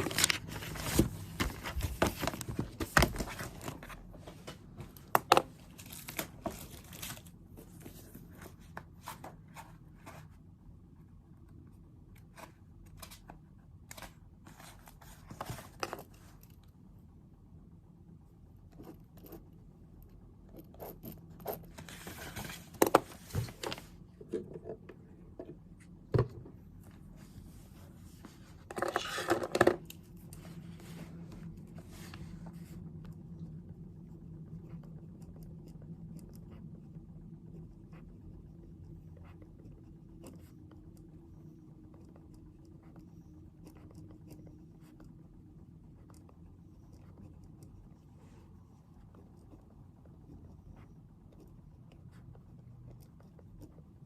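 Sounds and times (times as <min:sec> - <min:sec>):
paper rustling: 0:00.0 - 0:05.0, 0:05.6 - 0:10.4.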